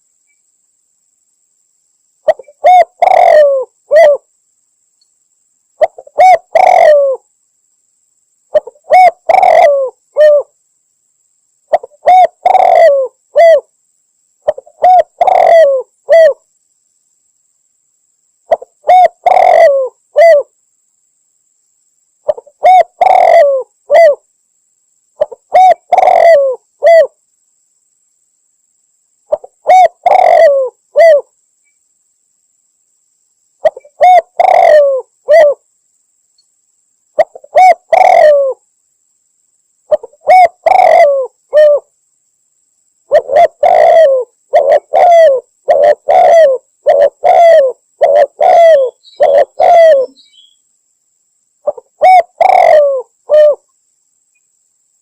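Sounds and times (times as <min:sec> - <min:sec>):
dove cooing: 0:02.2 - 0:04.3, 0:05.8 - 0:07.3, 0:08.5 - 0:10.5, 0:11.7 - 0:13.7, 0:14.4 - 0:16.4, 0:18.5 - 0:20.5, 0:22.3 - 0:24.2, 0:25.2 - 0:27.2, 0:29.3 - 0:31.3, 0:33.6 - 0:35.6, 0:37.2 - 0:38.6, 0:39.9 - 0:41.9, 0:43.1 - 0:50.2, 0:51.6 - 0:53.6.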